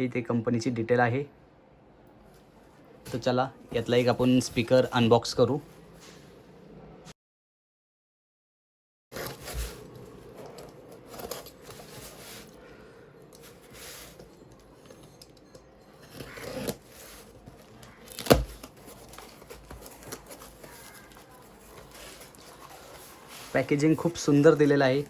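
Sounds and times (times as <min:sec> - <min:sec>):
cardboard and wrapping rustling: 0:03.0 - 0:06.2, 0:09.1 - 0:25.0.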